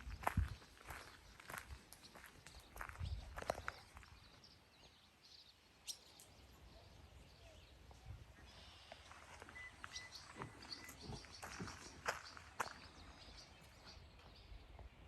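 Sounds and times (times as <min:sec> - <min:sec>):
faint birdsong: 0:00.0 - 0:15.0
quiet outdoor ambience: 0:00.0 - 0:15.0
footsteps: 0:09.0 - 0:13.0.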